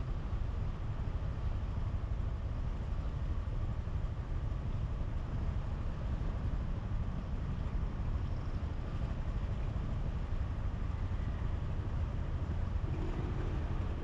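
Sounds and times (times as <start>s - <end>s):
road and wind noise: 0.0s - 14.0s
motorbike engine rumble: 12.7s - 14.0s.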